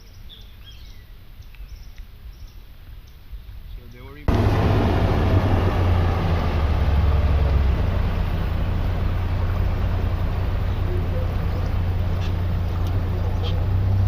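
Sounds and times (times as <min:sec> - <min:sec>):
boat motor humming: 0:04.3 - 0:14.0.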